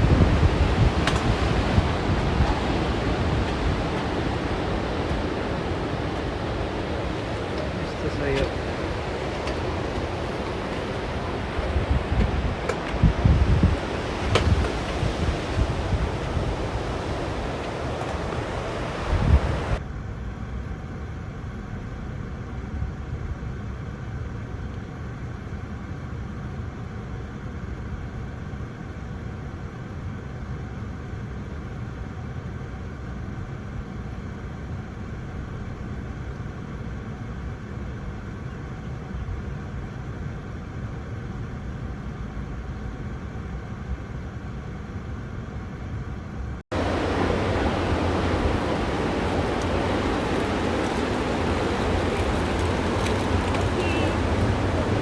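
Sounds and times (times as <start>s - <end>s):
surf: 0.0s - 19.8s, 46.7s - 55.0s
wind gust thump: 0.0s - 19.8s, 46.7s - 55.0s
wind noise on microphone: 0.0s - 19.8s, 46.7s - 55.0s.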